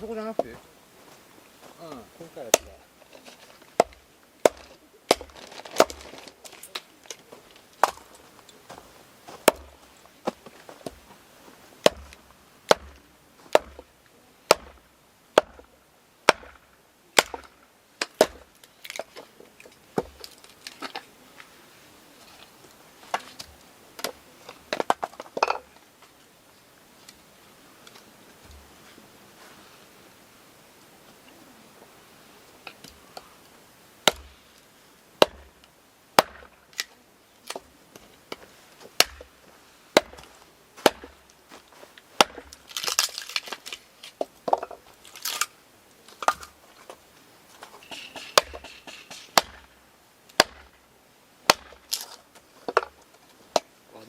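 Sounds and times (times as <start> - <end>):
firewood being chopped: 0.0 - 21.5, 22.3 - 25.8, 34.0 - 47.0, 47.6 - 53.7.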